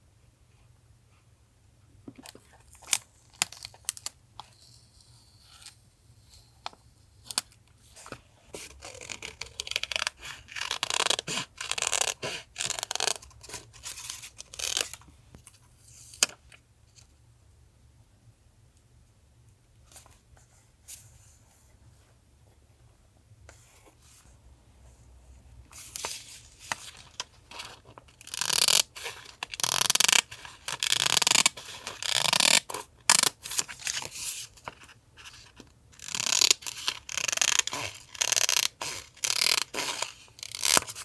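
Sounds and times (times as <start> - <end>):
paper tearing and crinkling: 36.0 - 41.0.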